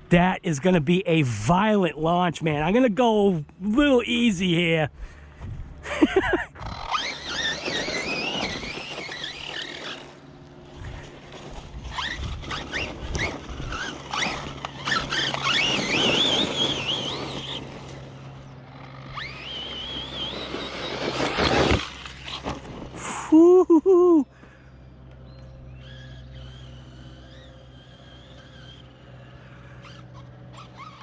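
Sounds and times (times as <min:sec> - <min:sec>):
tyres on dirt: 0:00.0 - 0:31.0
electric motor whining: 0:06.1 - 0:23.2, 0:24.4 - 0:31.0.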